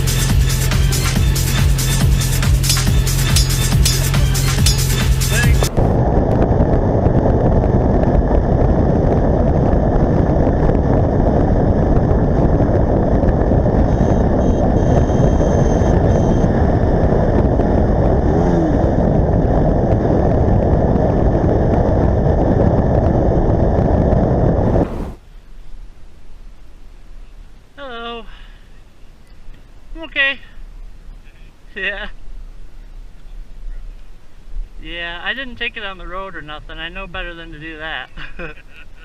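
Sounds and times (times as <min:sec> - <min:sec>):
wind and motorcycle engine noise: 0:00.0 - 0:25.3.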